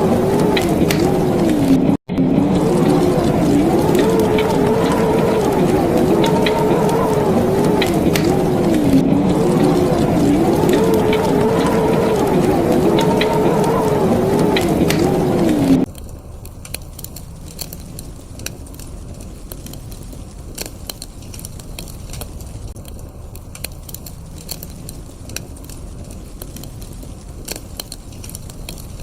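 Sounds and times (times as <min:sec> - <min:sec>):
wavering pitched sound: 0:00.0 - 0:15.9
low steady rumble: 0:00.0 - 0:29.0
wood fire crackling and popping: 0:00.0 - 0:29.0.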